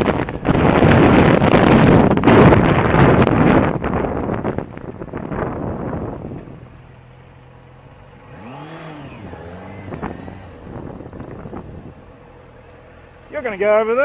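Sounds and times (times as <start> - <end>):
wind on microphone: 0.0 - 6.7, 8.3 - 12.2
motorcycle engine revving: 0.0 - 14.0.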